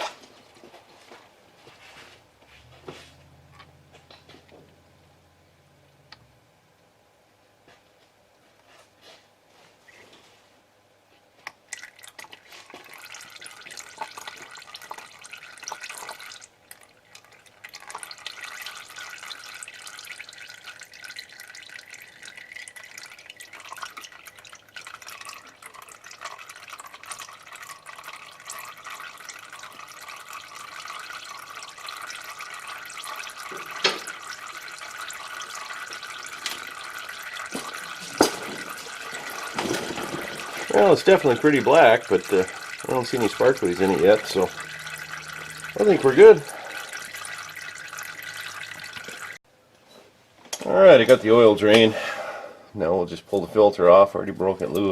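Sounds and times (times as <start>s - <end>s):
oil pouring into a pan: 11.5s - 49.4s.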